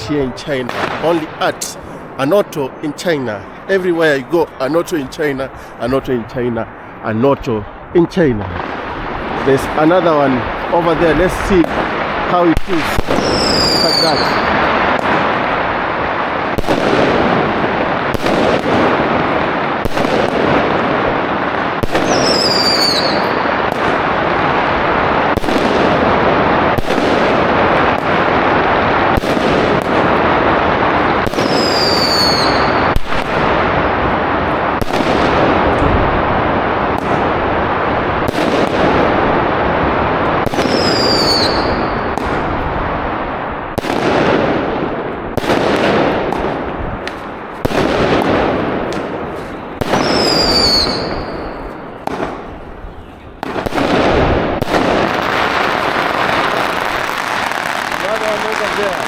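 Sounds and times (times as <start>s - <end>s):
firecrackers crackling: 0.0s - 59.0s
fireworks bangs: 0.0s - 59.0s
firework whistle falling: 13.0s - 14.6s, 21.9s - 23.4s, 31.3s - 33.0s, 40.5s - 42.1s, 49.9s - 51.7s.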